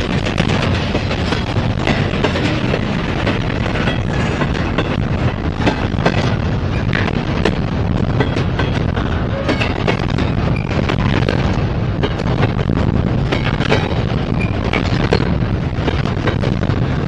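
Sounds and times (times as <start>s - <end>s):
freight train rumbling past: 0.0s - 17.0s
wheels clacking on rail: 0.0s - 17.0s.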